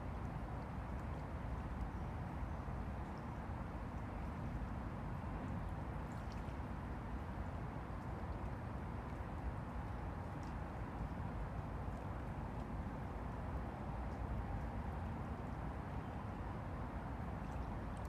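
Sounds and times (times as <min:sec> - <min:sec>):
faint little splashes: 0:04.2 - 0:11.2.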